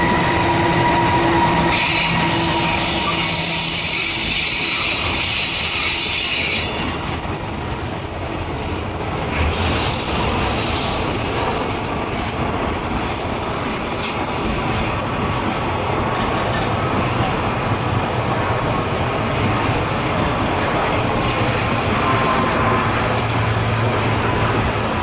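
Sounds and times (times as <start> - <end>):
high wheel squeal: 0.0 - 6.8
freight train wheels rumbling: 0.0 - 25.0.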